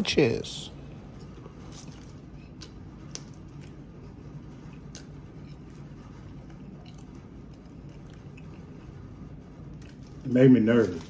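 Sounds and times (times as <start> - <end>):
steady low hum: 0.0 - 11.0
close chewing: 6.3 - 9.0.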